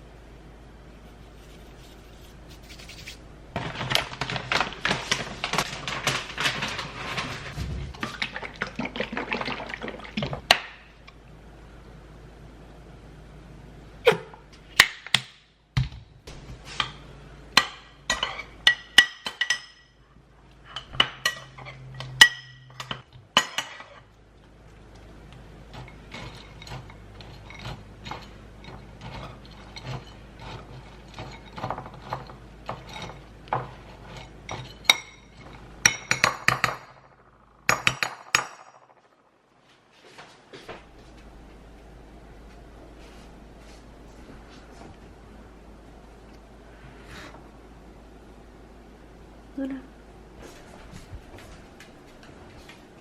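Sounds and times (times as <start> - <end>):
low steady hum: 0.0 - 53.0
dishes and utensils clinking: 17.6 - 20.0, 20.6 - 24.1, 25.7 - 37.1.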